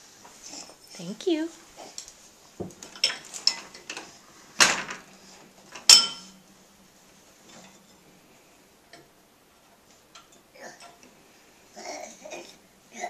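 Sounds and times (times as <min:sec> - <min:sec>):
dishes clanking: 0:02.6 - 0:04.1, 0:05.8 - 0:06.4.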